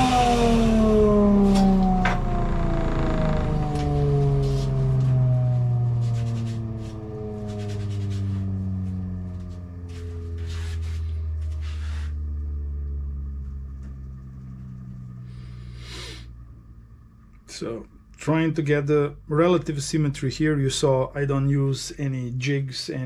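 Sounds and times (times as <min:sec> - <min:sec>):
grinder motor winding down: 0:00.0 - 0:16.2
short scraping sounds: 0:09.9 - 0:12.2.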